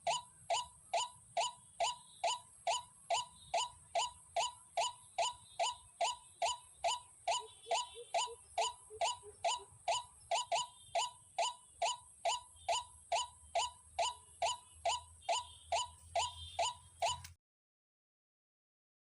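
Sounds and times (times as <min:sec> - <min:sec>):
fainter lower bird calls: 0:00.0 - 0:17.3
waterhen calling: 0:00.9 - 0:11.1.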